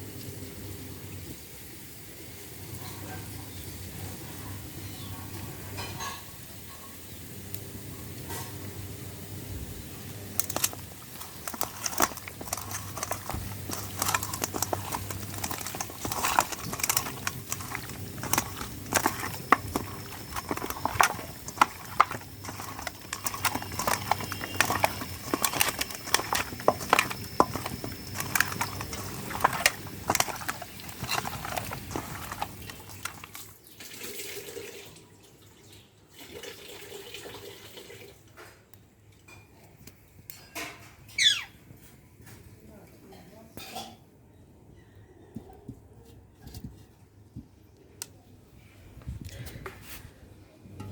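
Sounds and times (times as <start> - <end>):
metal spoon scraping pan: 10.3 - 33.5.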